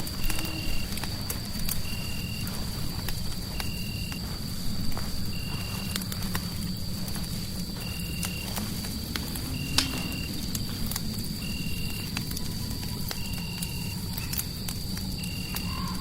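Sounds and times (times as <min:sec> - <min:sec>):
fireplace crackling and popping: 0:00.0 - 0:16.0
low rumble of fire: 0:00.0 - 0:16.0.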